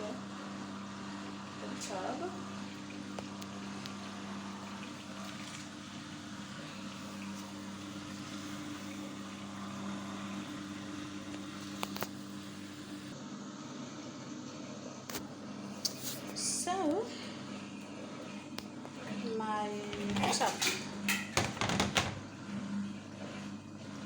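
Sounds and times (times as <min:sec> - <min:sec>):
water running into tub: 0:01.8 - 0:13.1.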